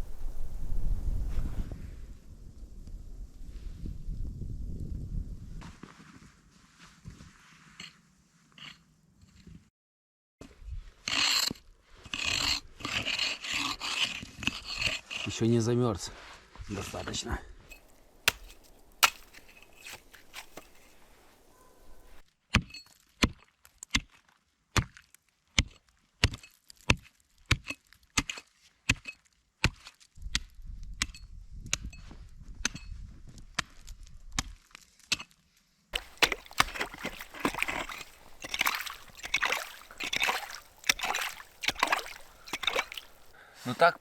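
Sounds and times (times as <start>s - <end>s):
axe scraping: 7.5s - 9.5s, 11.0s - 15.4s, 17.7s - 22.2s, 36.0s - 44.0s
axe chopping: 17.7s - 21.1s, 36.0s - 43.4s.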